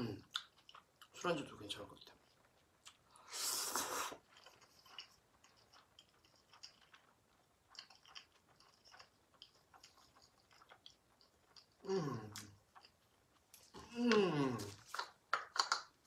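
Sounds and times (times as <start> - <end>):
wet chewing with mouth clicks: 0.1 - 16.0
loud noodle slurp: 3.2 - 4.4.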